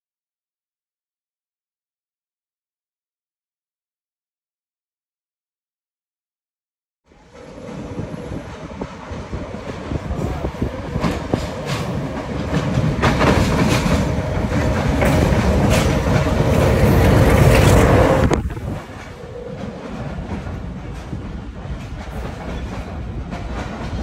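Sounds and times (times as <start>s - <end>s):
diesel locomotive engine rumble: 7.1s - 24.0s
wheels clicking over rails: 7.3s - 24.0s.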